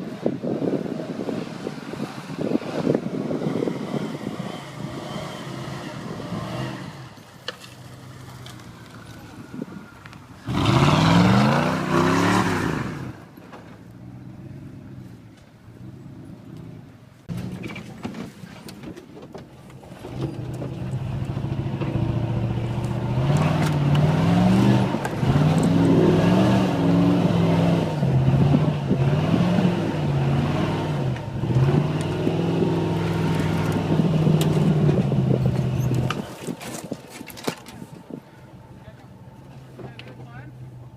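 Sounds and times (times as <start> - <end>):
truck engine revving hard: 1.0 - 7.2, 10.4 - 13.2, 20.1 - 36.2.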